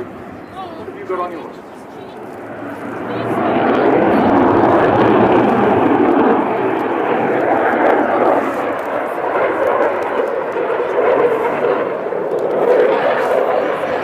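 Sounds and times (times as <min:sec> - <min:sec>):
jet engine roar: 0:00.0 - 0:14.0.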